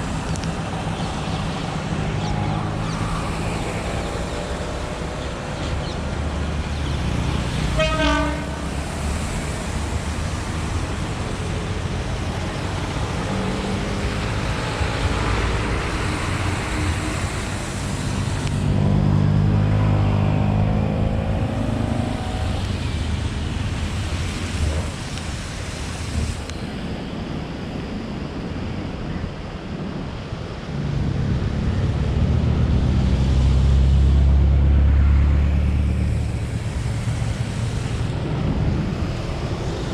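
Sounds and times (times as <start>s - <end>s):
short horn toot: 7.8s - 8.6s.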